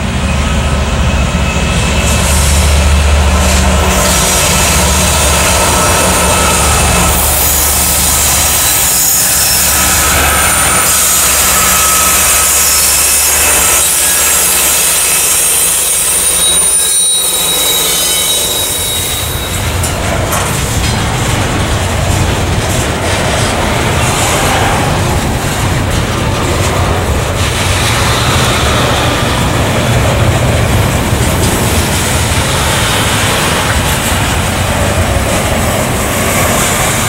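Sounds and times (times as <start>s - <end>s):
diesel locomotive engine drone: 0.0s - 37.0s
wheels rumbling on rail: 0.0s - 37.0s
wheel squeal: 1.1s - 19.9s.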